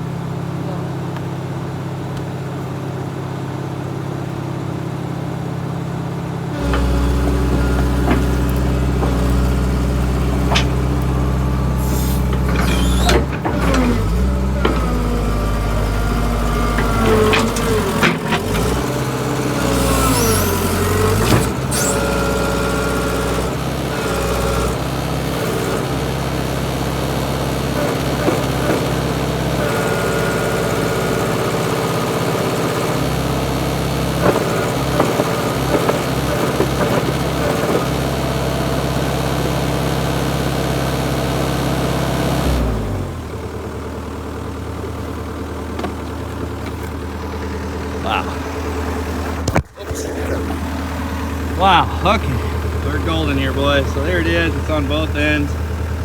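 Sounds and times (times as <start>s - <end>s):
diesel engine running: 0.0s - 56.0s
whining and squealing tones: 6.6s - 23.5s, 47.9s - 55.7s.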